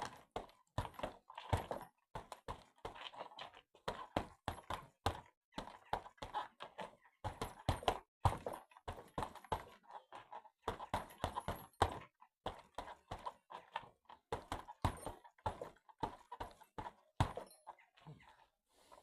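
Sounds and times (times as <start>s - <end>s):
punches thudding on padded targets: 7.2s - 9.7s.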